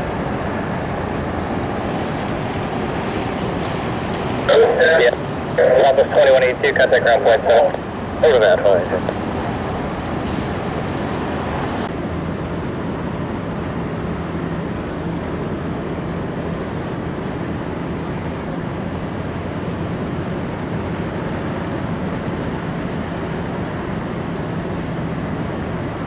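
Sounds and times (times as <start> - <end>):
jet engines rumbling: 0.0 - 26.0
steady hum: 0.0 - 26.0.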